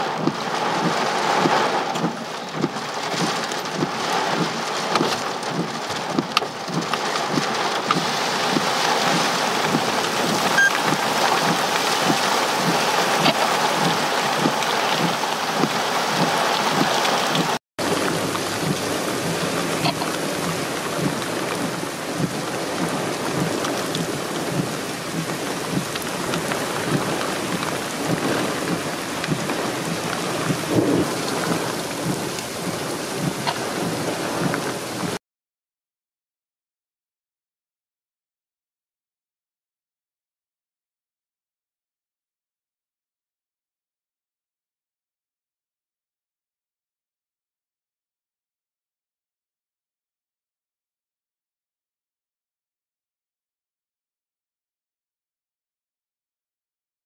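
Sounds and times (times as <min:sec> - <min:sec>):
raindrops hitting a car: 0:00.0 - 0:35.2
torrential rain: 0:00.0 - 0:35.2.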